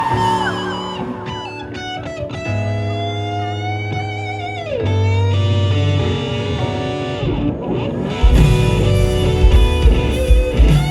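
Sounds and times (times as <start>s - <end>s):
electric guitar with vibrato: 0.0s - 10.9s
bass guitar notes: 4.6s - 10.9s.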